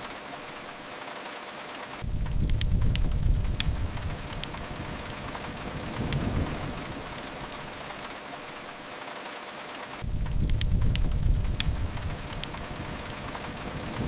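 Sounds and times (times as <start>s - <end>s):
steady rain hiss: 0.0s - 14.0s
wood fire crackles: 0.0s - 14.0s
low rumble: 2.0s - 8.0s, 10.0s - 14.0s.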